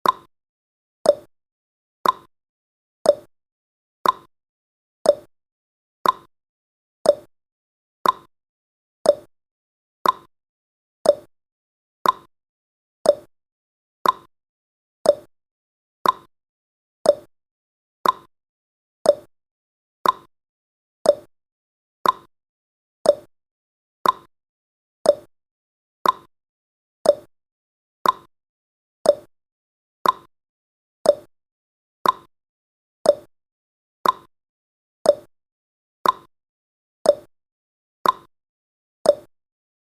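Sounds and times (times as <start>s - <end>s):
timer ticking: 0.0s - 0.3s, 1.1s - 1.3s, 2.0s - 2.3s, 3.1s - 3.3s, 4.0s - 4.3s, 5.1s - 5.3s, 6.0s - 6.3s, 7.0s - 7.3s, 8.0s - 8.3s, 9.0s - 9.3s, 10.0s - 10.3s, 11.0s - 11.3s, 12.0s - 12.3s, 13.0s - 13.3s, 14.0s - 14.3s, 15.0s - 15.3s, 16.0s - 16.3s, 17.0s - 17.3s, 18.0s - 18.3s, 19.0s - 19.3s, 20.0s - 20.3s, 21.0s - 21.3s, 22.0s - 22.3s, 23.0s - 23.3s, 24.0s - 24.3s, 25.0s - 25.3s, 26.0s - 26.3s, 27.0s - 27.3s, 28.0s - 28.3s, 29.0s - 29.3s, 30.0s - 30.3s, 31.0s - 31.3s, 32.0s - 32.3s, 33.0s - 33.3s, 34.0s - 34.3s, 35.1s - 35.3s, 36.0s - 36.3s, 37.1s - 37.3s, 38.0s - 38.3s, 39.1s - 39.3s.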